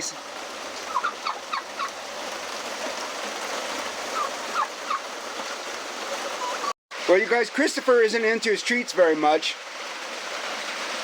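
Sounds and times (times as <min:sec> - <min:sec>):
heavy rain hissing: 0:00.0 - 0:11.0
pheasant chirping calls: 0:00.9 - 0:01.9.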